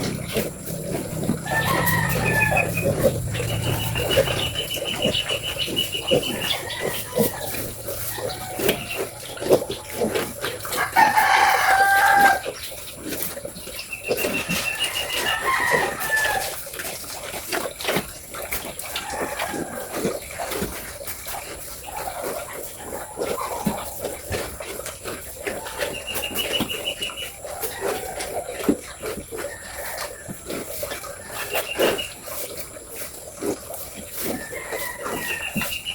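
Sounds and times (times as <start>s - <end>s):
rooster crowing: 0.0s - 9.3s, 10.7s - 12.5s, 14.5s - 16.5s, 19.0s - 19.9s, 34.3s - 35.9s.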